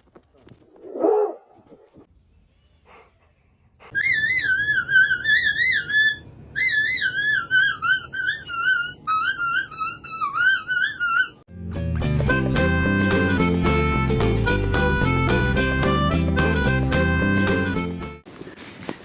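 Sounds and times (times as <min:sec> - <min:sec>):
wavering whistle-like tones: 0:04.0 - 0:11.4.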